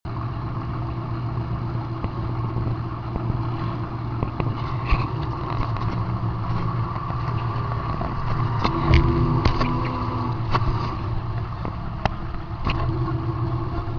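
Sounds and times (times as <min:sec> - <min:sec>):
car engine running: 0:00.1 - 0:13.9.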